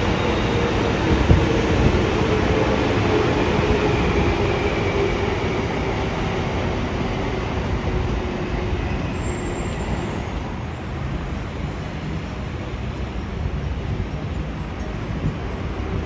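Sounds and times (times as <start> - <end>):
train rail noise: 0.0 - 16.0.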